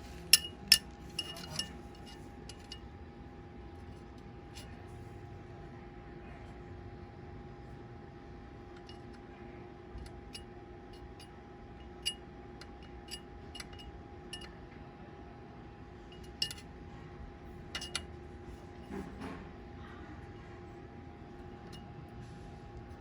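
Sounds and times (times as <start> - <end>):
steady electrical hum: 0.0 - 23.0
light metallic clinks and taps: 0.2 - 2.8, 10.0 - 14.6, 16.1 - 16.7, 17.7 - 18.1.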